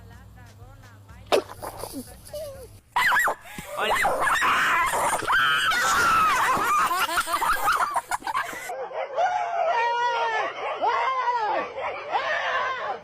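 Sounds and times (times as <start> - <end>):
dog whining and yowling: 2.4 - 7.8.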